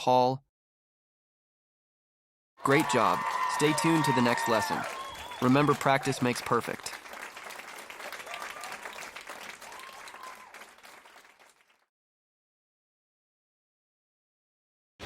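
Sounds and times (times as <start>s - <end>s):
crowd applause: 2.6s - 11.8s.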